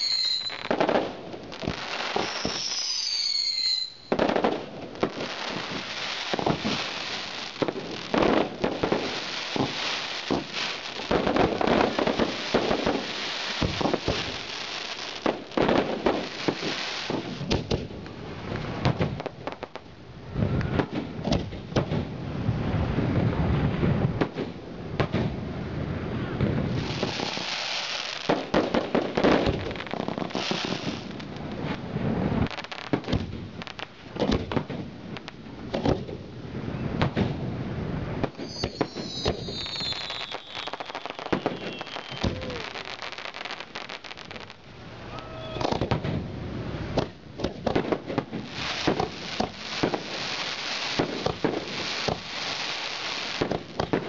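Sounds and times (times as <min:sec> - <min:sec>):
firework whistle gliding: 0:00.0 - 0:00.8, 0:01.8 - 0:04.4, 0:26.2 - 0:28.2, 0:38.3 - 0:44.0, 0:45.0 - 0:45.8
fireworks bangs and crackles: 0:00.0 - 0:54.0.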